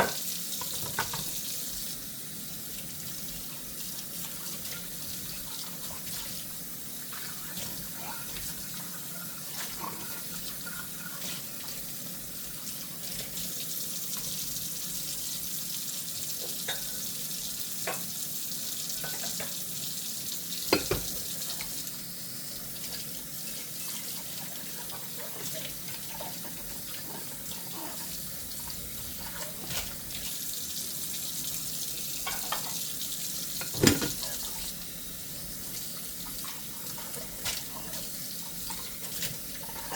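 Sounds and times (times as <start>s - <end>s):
tap running into sink: 0.0s - 1.4s, 20.6s - 21.8s, 33.6s - 34.6s
dishware clinking: 20.7s - 21.1s, 33.6s - 34.5s
dishes knocking: 20.7s - 21.2s, 33.6s - 34.4s.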